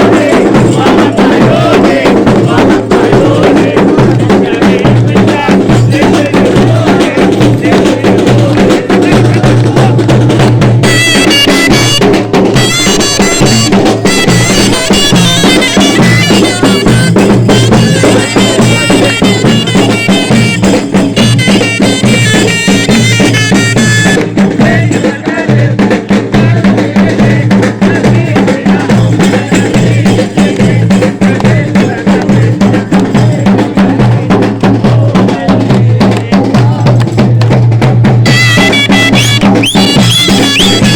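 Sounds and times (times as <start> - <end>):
drums beating fast rhythm: 0.0 - 40.9
bagpipe melody: 10.8 - 24.2, 38.3 - 40.9.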